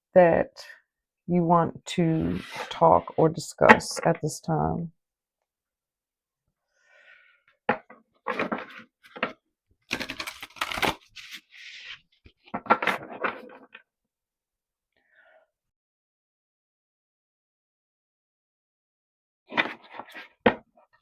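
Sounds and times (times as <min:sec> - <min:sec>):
cards shuffling and rustling: 0:08.3 - 0:13.7.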